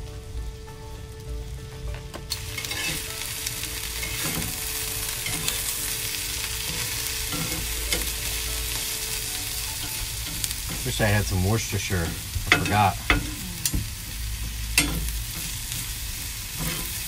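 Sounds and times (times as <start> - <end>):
vegetables sizzling on griddle: 0.0 - 17.0
spatula and tongs clicking on griddle: 2.3 - 3.1, 3.9 - 6.0, 6.6 - 17.0.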